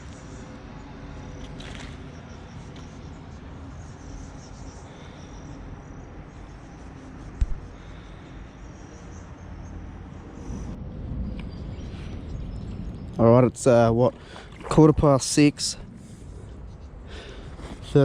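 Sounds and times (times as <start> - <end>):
faint high insect chirping: 0.0 - 13.2
steady low rumble: 0.0 - 18.0.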